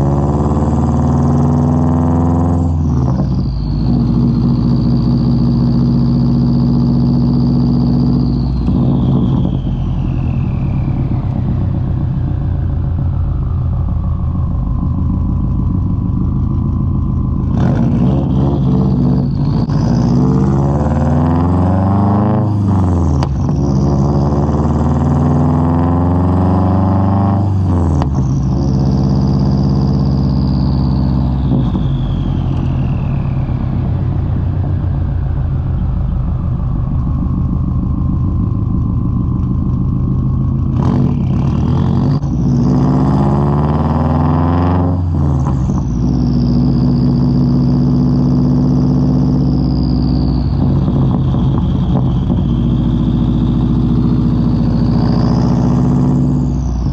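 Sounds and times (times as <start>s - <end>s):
car engine revving: 0.0s - 56.9s.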